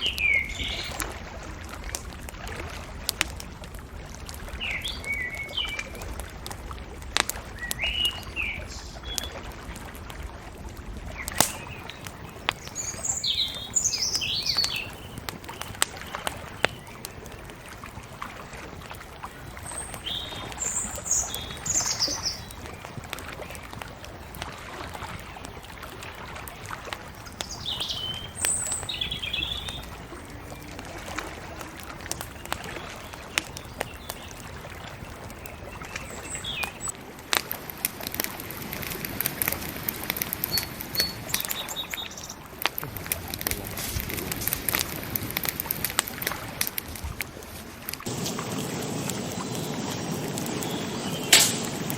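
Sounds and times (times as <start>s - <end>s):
small birds chirping: 0.0s - 1.0s, 4.5s - 6.0s, 7.5s - 9.4s, 11.0s - 17.4s, 19.4s - 24.3s, 26.5s - 30.9s, 31.9s - 37.0s, 38.7s - 46.2s, 48.0s - 51.9s
bonfire crackling and popping: 0.0s - 51.9s.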